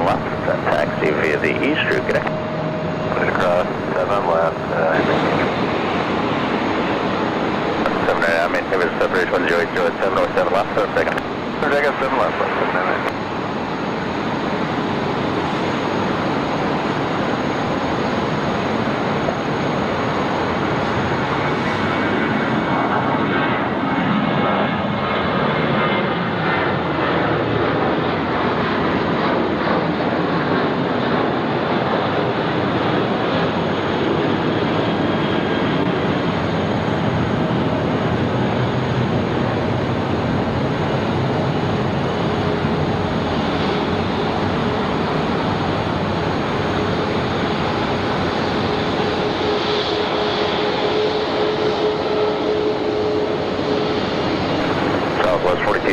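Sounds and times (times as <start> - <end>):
jet engines at takeoff: 0.0 - 55.9.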